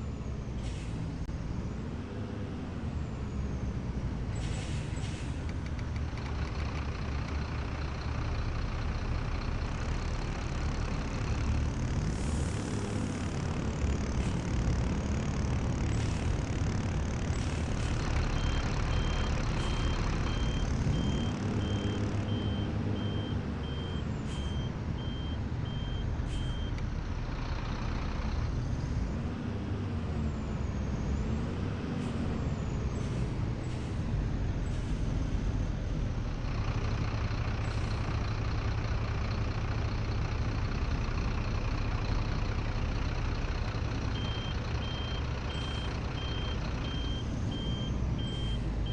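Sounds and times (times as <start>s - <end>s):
bus engine running: 0.0s - 48.9s
evenly spaced beeps: 18.1s - 26.8s, 44.1s - 48.9s.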